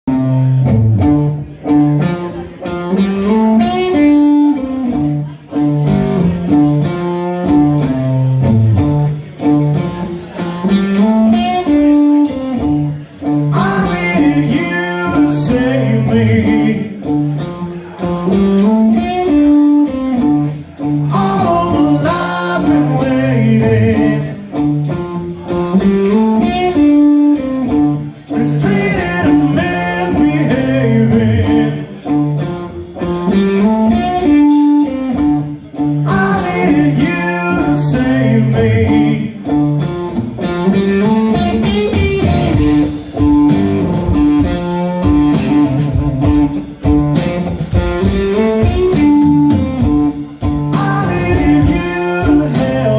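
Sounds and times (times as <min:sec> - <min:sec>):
guitars playing: 0:00.0 - 0:52.9
steady drum beat: 0:04.9 - 0:52.9
person singing: 0:13.2 - 0:17.2, 0:21.0 - 0:24.6, 0:28.3 - 0:32.2, 0:35.8 - 0:39.6, 0:50.6 - 0:52.9.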